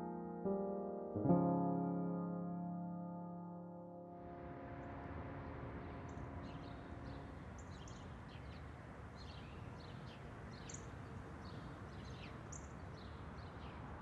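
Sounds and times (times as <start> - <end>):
soft music chord: 0.0 - 8.5
low outdoor hum: 4.2 - 9.2
small birds chirping: 6.1 - 13.9.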